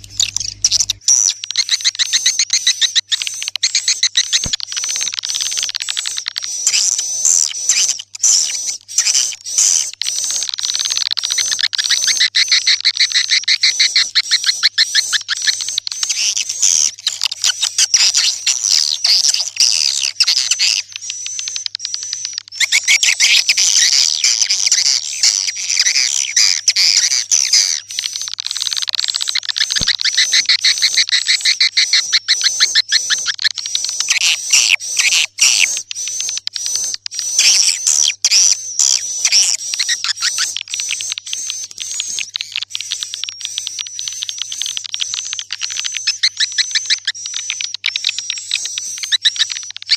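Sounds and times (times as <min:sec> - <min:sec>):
faint steady hum: 0:00.0 - 0:01.1
swiftlet twittering chirps: 0:00.0 - 0:49.9.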